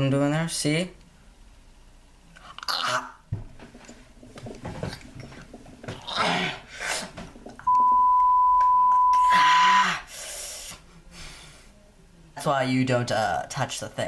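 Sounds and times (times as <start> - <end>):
breathy hissing sounds: 6.0 - 7.2, 9.4 - 11.8
censor bleep: 7.6 - 9.4.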